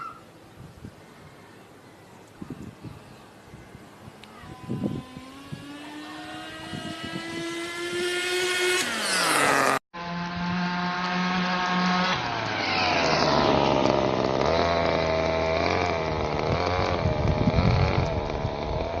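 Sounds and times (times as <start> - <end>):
small nitro engine revving: 4.2 - 19.0.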